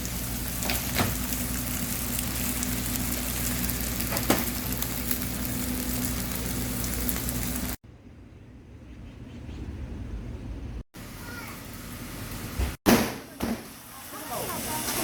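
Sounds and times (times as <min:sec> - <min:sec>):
chickens sizzling over fire: 0:00.0 - 0:07.8, 0:11.0 - 0:12.6, 0:13.3 - 0:15.0.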